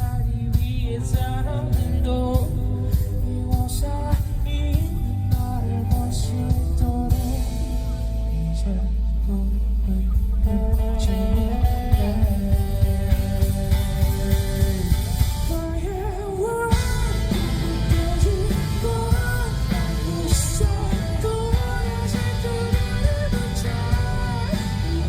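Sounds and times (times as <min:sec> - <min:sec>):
drum kit beat: 0:00.0 - 0:08.6, 0:09.2 - 0:25.0
bass guitar: 0:00.0 - 0:25.0
electric guitar: 0:00.0 - 0:25.0
man singing: 0:00.0 - 0:25.0.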